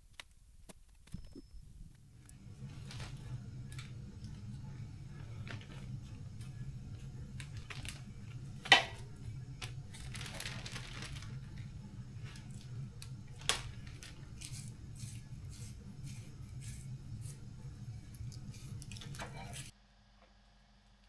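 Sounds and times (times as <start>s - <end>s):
steady low hum: 0.0s - 19.7s.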